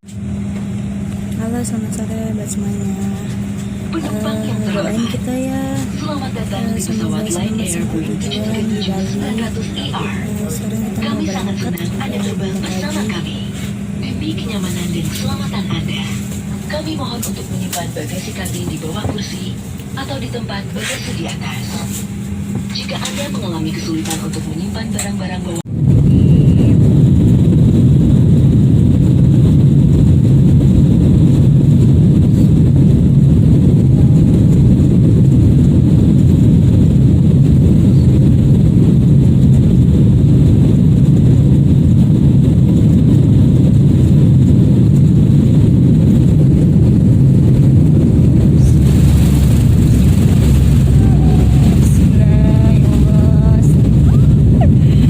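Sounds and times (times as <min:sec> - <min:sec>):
airliner engines rumbling: 0:00.0 - 0:55.0
faint voices: 0:01.4 - 0:25.6, 0:48.4 - 0:55.0.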